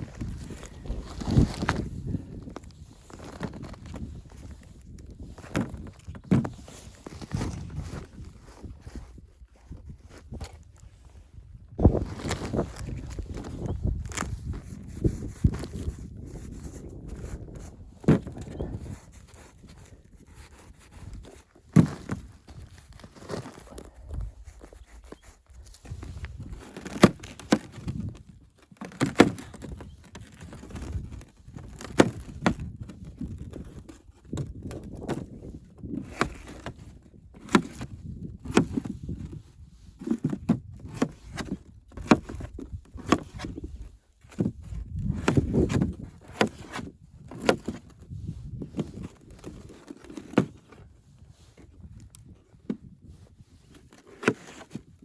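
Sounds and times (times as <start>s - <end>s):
shuffling and rustling: 0.0s - 36.9s
sharp knocks and dull thuds: 13.4s - 19.9s.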